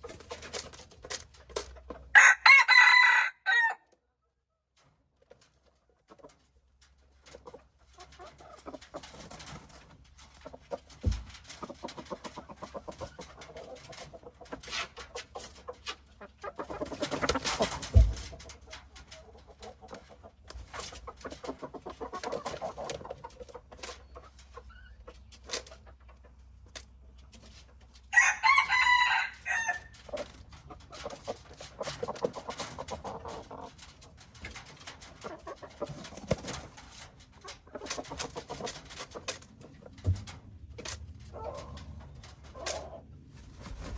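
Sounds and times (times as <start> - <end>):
chickens clucking: 0.0 - 3.6, 4.3 - 43.9
rooster crowing: 2.2 - 3.8, 28.1 - 29.9.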